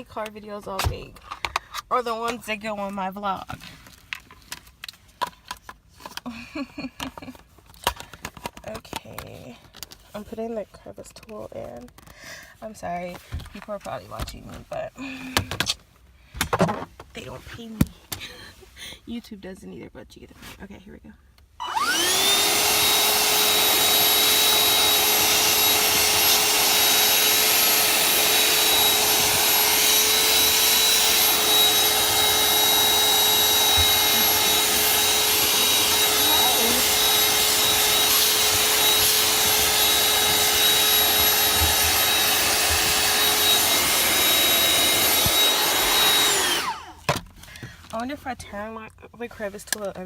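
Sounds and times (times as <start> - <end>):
vacuum cleaner running: 21.6 - 47.2.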